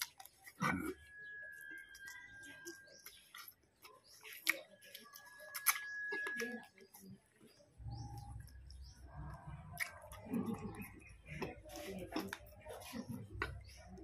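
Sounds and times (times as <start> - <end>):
mouth clicks and lip smacks: 0.0 - 7.1, 7.9 - 14.0
sipping and swallowing: 7.9 - 14.0.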